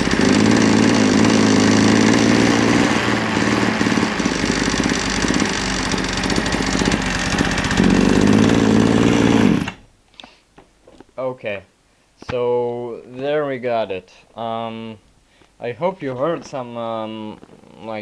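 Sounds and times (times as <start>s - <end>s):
two-stroke engine running fast: 0.0s - 9.8s.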